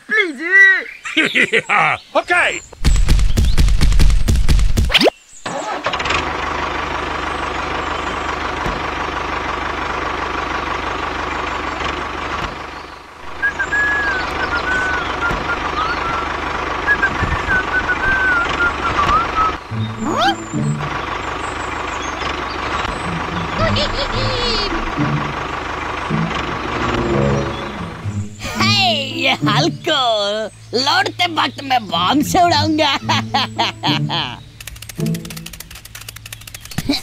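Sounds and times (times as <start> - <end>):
tractor engine starting and running: 2.8 - 37.0
high chirps: 13.2 - 29.9.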